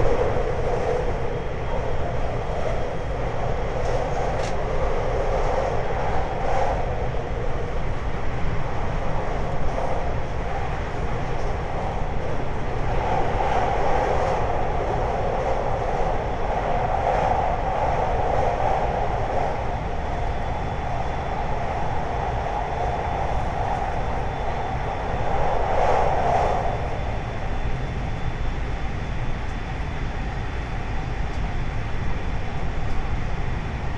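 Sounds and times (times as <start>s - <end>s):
train wheels rumbling on rails: 0.0s - 33.9s.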